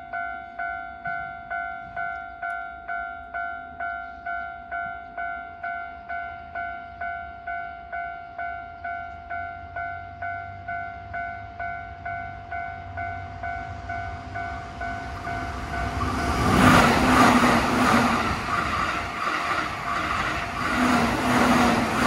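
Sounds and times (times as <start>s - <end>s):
level crossing warning bell: 0.0s - 20.7s
train wheels clattering over rails: 14.9s - 22.0s.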